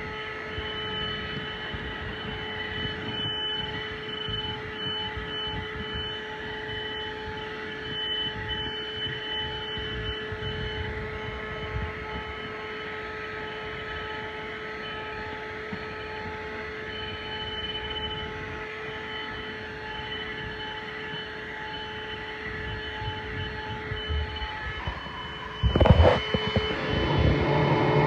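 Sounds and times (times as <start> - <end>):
car vacuum cleaner motor whine: 0.0 - 28.0
rush of air: 24.8 - 28.0.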